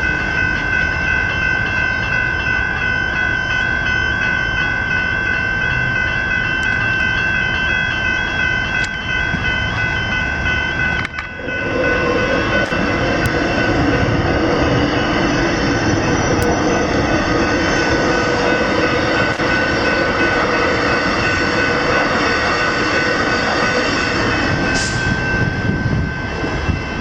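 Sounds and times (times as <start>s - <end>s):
level crossing bells ringing: 0.0s - 27.0s
train rumbling past: 0.0s - 27.0s.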